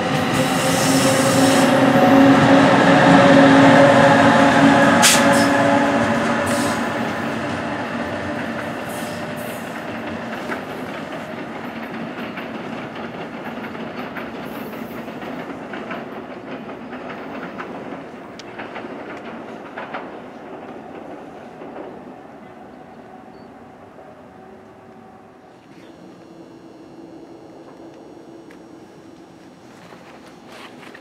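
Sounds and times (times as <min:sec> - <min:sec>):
wheels clicking over rail joints: 0:06.1 - 0:22.2
steady hum: 0:24.5 - 0:31.0.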